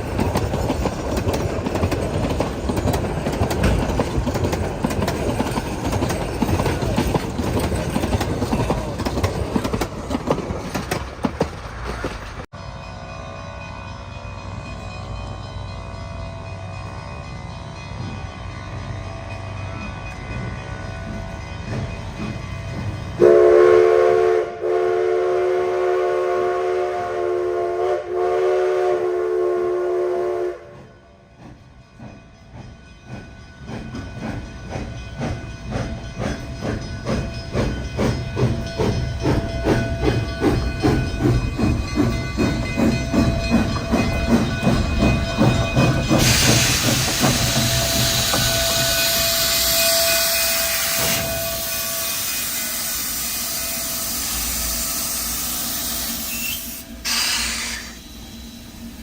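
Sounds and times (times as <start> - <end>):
steam locomotive chuffing: 0.0 - 12.5, 13.2 - 59.0
steam locomotive whistle: 23.2 - 31.0, 46.2 - 58.4
loud steam hiss: 45.4 - 59.0.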